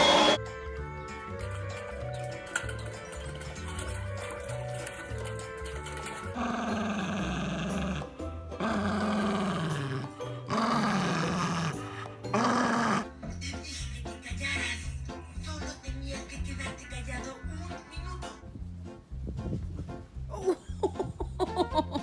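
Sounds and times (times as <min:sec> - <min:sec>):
background music: 0:00.0 - 0:22.0
dog howling roughly: 0:06.3 - 0:13.1.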